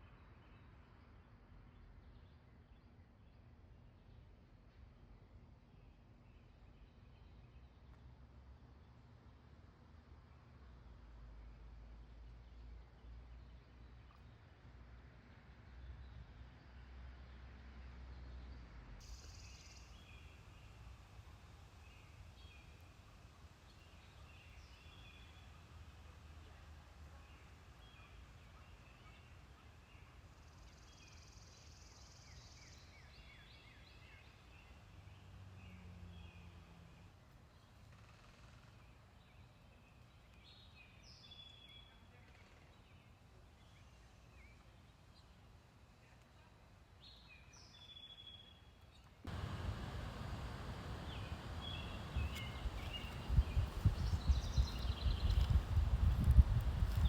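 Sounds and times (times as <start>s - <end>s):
faint bird chirps: 19.0s - 20.8s
low background rumble: 49.3s - 57.0s.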